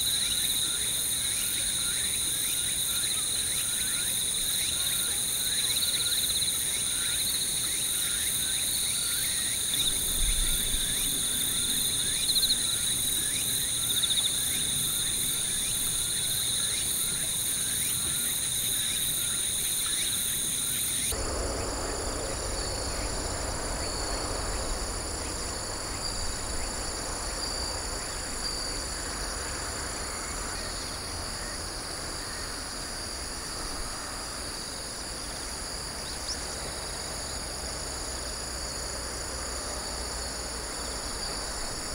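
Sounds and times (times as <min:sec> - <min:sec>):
insects trilling: 0:00.0 - 0:41.9
low rumble: 0:21.2 - 0:30.3.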